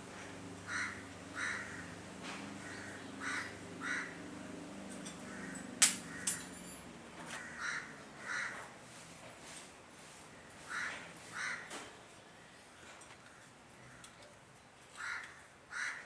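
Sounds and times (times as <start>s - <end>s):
harsh bird calls: 0.6s - 2.0s, 2.6s - 4.2s.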